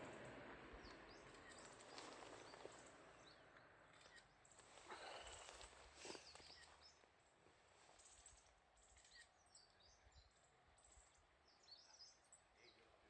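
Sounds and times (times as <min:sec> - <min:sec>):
bird chirps: 0:00.2 - 0:07.1, 0:08.0 - 0:13.0.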